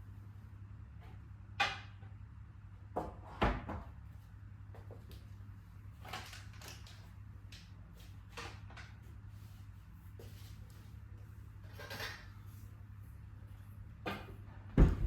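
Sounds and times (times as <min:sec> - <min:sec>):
low steady hum: 0:03.8 - 0:15.0.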